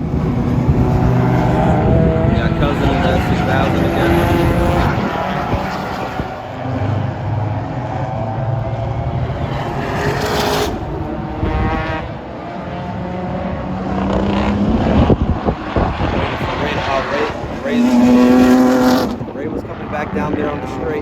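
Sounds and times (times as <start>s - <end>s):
rush of noise: 0.0s - 12.8s
race car engines passing: 0.0s - 21.0s.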